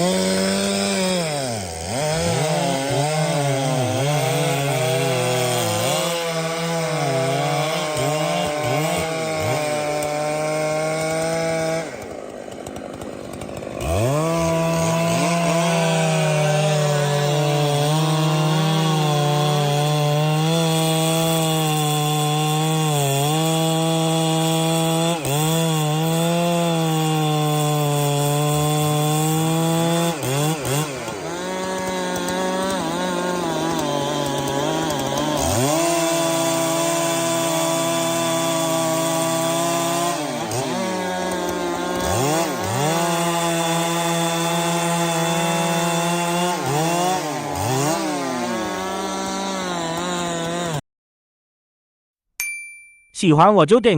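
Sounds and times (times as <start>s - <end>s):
chainsaw cutting wood: 0.0s - 50.8s.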